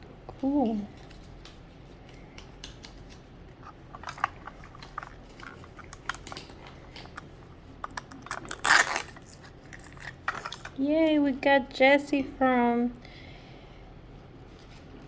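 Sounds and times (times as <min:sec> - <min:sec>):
plastic packaging clicks and crinkles: 0:00.3 - 0:10.8.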